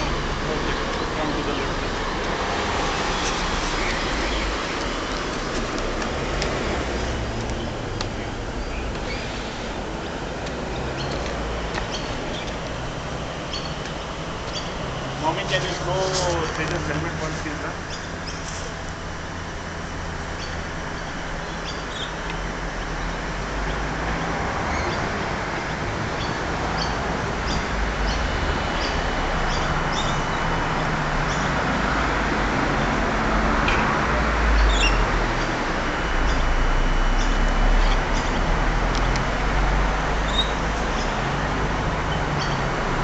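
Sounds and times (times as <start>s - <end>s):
steady outdoor hiss: 0.0s - 43.0s
small birds chirping: 3.0s - 5.4s, 6.8s - 18.8s, 20.2s - 31.6s, 34.4s - 35.1s, 40.2s - 41.3s, 42.0s - 42.8s.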